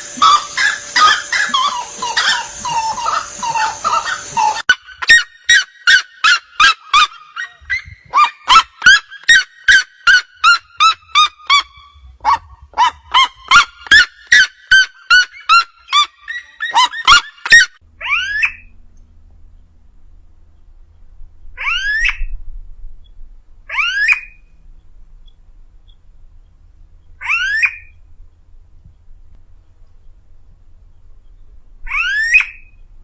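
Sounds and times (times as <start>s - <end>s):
bird rising chatter: 0.0s - 11.9s
bird calling sharp notes: 0.0s - 12.1s, 31.9s - 32.8s.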